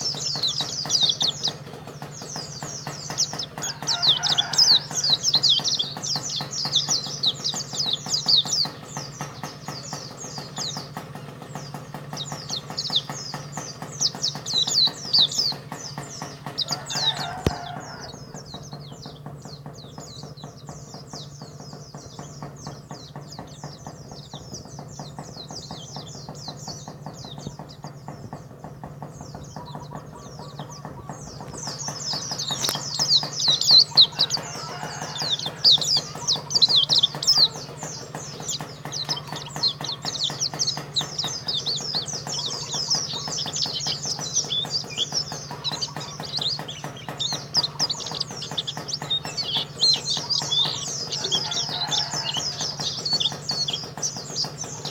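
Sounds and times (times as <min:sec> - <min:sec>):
songbird twittering: 0:00.0 - 0:54.9
steady low hum: 0:00.0 - 0:54.9.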